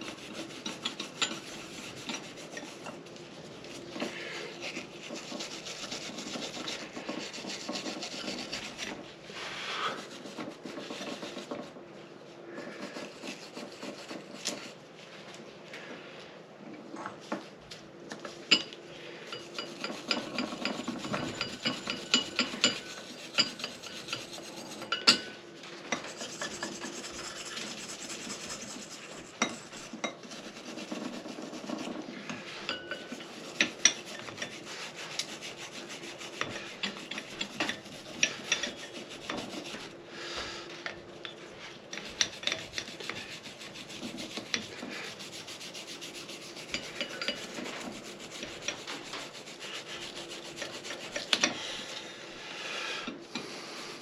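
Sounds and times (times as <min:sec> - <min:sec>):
hand scraping hard parts: 0:00.0 - 0:11.8, 0:18.2 - 0:52.0.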